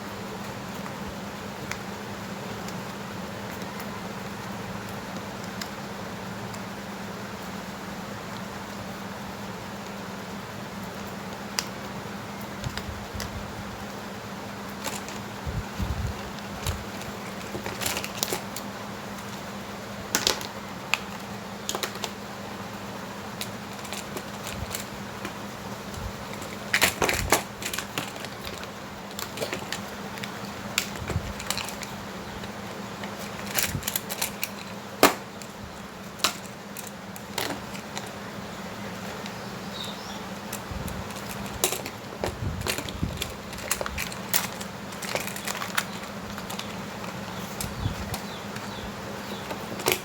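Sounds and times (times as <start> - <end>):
steady low hum: 0.0 - 50.0
tools and parts clicking: 14.7 - 15.3, 16.1 - 19.4, 20.1 - 22.2, 23.3 - 38.2, 39.0 - 50.0.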